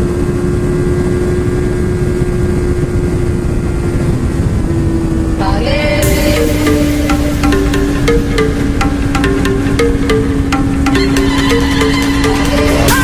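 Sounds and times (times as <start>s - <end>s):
wind rush on microphone: 0.0s - 6.9s
motorcycle engine running: 0.0s - 13.0s
music with distinct notes: 5.7s - 13.0s.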